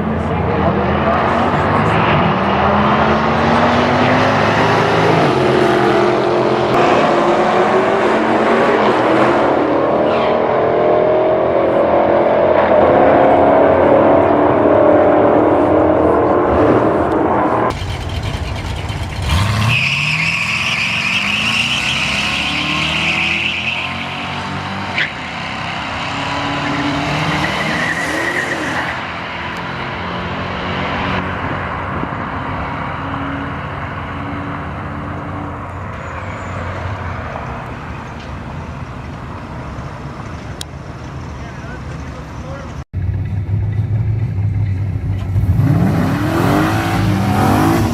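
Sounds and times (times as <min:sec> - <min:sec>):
drag car engines revving: 0:00.0 - 0:47.9
tyre squeal: 0:18.8 - 0:25.3, 0:25.9 - 0:29.0, 0:35.8 - 0:37.0.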